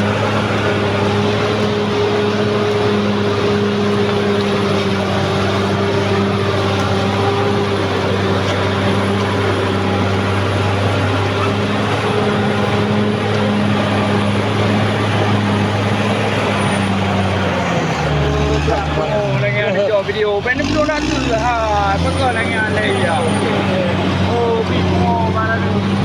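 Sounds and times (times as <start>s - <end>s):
bulldozer diesel engine running: 0.0s - 26.0s.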